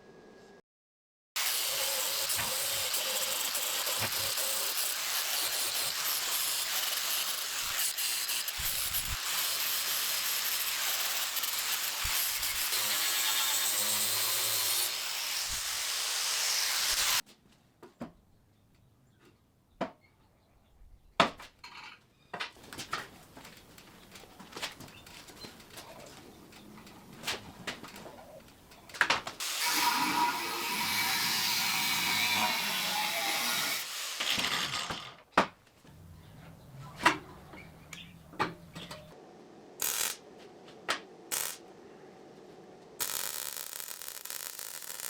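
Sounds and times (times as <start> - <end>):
hissing of metalworking on steel: 29.4 - 34.3.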